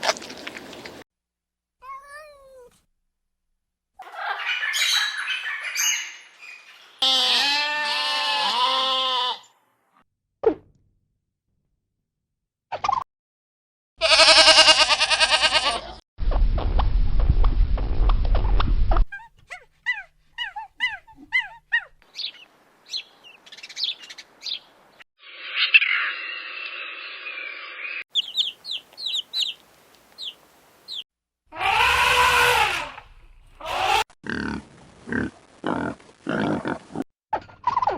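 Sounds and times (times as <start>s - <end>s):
chirping bird calls: 4.0s - 7.0s, 19.9s - 24.7s, 28.1s - 31.0s
wavering animal call: 31.5s - 33.0s.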